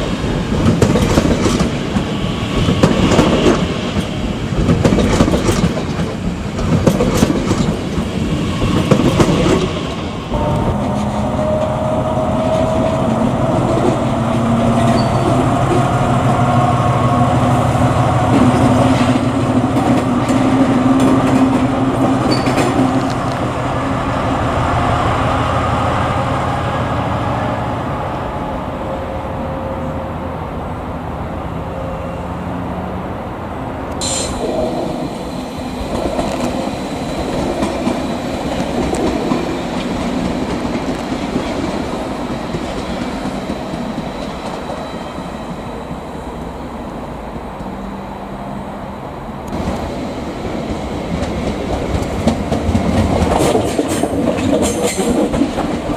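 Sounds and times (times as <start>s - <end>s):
train drive hum with whine: 0.0s - 55.9s
train wheels clattering over rail joints: 0.5s - 9.9s, 18.3s - 23.6s, 51.1s - 55.9s
high squeal: 10.3s - 18.2s.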